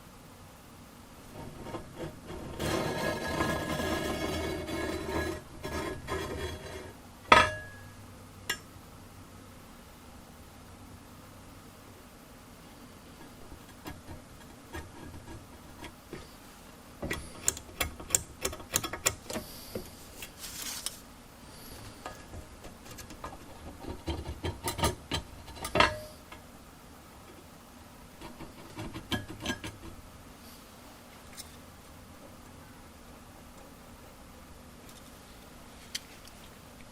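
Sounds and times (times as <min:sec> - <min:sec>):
scraping rustle: 0:01.3 - 0:07.0, 0:19.4 - 0:24.5
hand tools clicking and knocking: 0:17.1 - 0:19.4.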